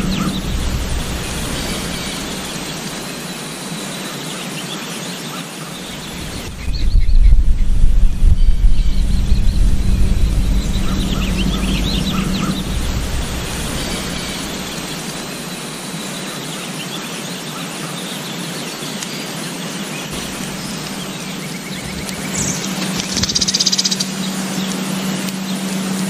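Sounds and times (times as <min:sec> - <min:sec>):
low rumble: 0:00.0 - 0:03.6, 0:05.9 - 0:15.9, 0:20.1 - 0:24.2
steady hiss: 0:00.0 - 0:16.9, 0:19.1 - 0:25.2
birds chirping: 0:00.0 - 0:26.0.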